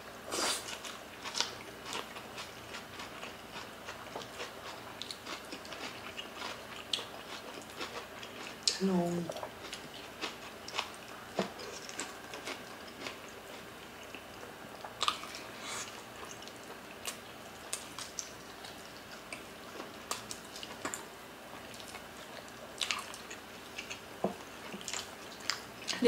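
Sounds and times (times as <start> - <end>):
people chewing: 0.3 - 26.0.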